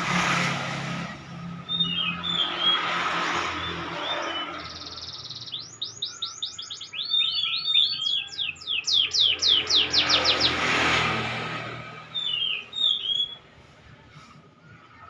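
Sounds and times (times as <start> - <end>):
canary singing: 1.6 - 10.6, 12.1 - 13.5.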